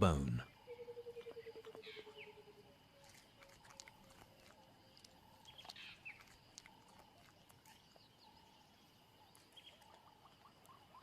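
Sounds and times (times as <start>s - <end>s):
small chirps and clicks: 2.9s - 11.0s.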